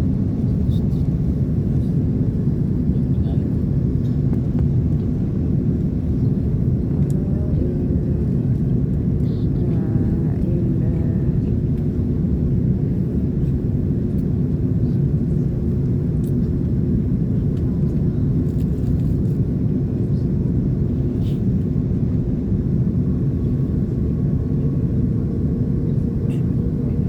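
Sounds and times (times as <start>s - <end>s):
airliner cabin rumble: 0.0s - 27.0s.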